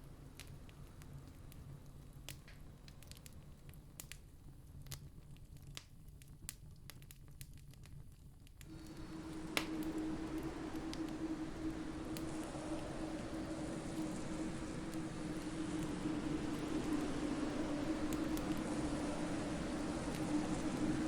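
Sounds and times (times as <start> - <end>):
campfire crackling: 8.6 - 21.0
faint low hum: 8.7 - 21.0
steady rushing noise: 8.7 - 21.0.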